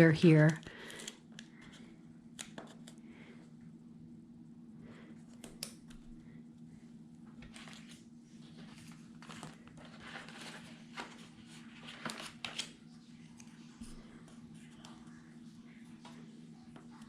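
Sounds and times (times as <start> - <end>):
steady low hum: 0.0 - 12.1
paper rustling and crinkling: 7.4 - 15.2.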